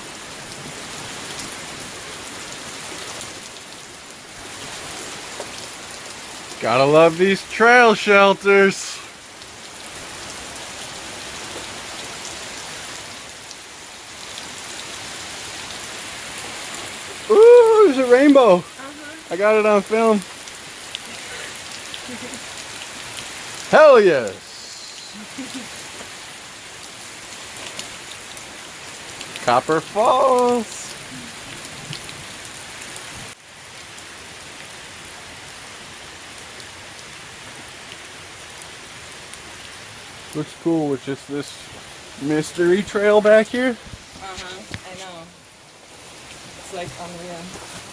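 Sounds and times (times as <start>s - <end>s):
waterfall rushing: 6.6s - 9.2s, 16.3s - 20.4s, 21.1s - 26.0s, 29.2s - 31.4s.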